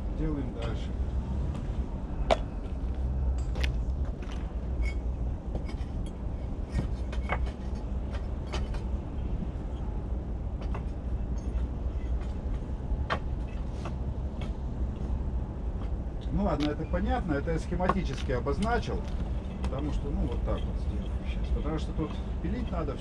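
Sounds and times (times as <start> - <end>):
bricks knocking on bricks: 6.8 - 8.9.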